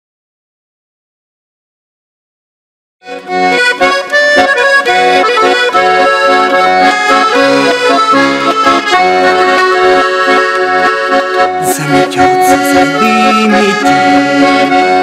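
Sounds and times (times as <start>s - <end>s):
accordion playing chords: 3.0s - 15.0s
bass line: 11.4s - 15.0s.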